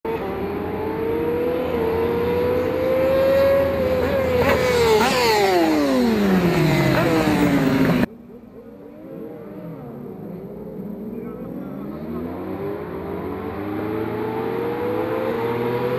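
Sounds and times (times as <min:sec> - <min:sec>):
racing motorcycles passing: 0:00.1 - 0:15.9.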